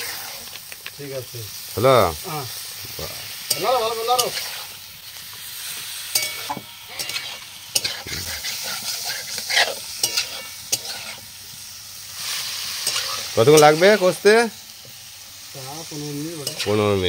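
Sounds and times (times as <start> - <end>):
spatula scraping a pan: 0.0 - 0.6, 3.2 - 4.8, 6.1 - 11.3, 12.2 - 14.1
chicken sizzling in a pan: 0.0 - 17.0
spatula clinking against pan: 6.1 - 8.0.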